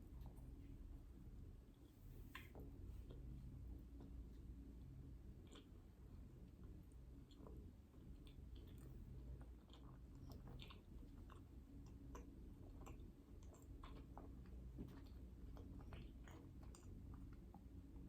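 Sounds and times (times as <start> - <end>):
low steady hum: 0.0 - 18.0
person chewing with mouth sounds: 5.3 - 17.8.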